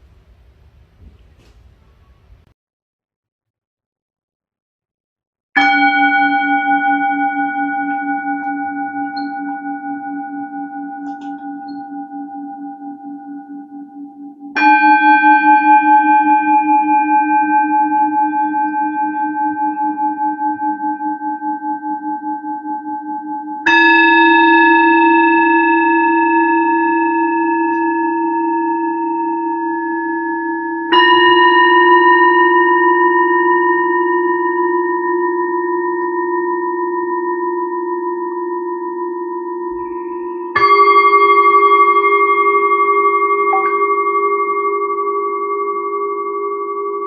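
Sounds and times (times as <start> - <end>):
singing bowls ringing: 5.6 - 47.0.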